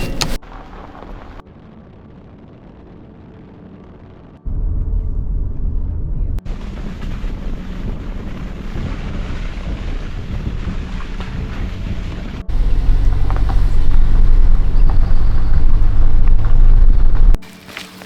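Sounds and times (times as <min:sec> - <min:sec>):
wind buffeting microphone: 0:04.5 - 0:17.4
rushing water: 0:06.5 - 0:18.0.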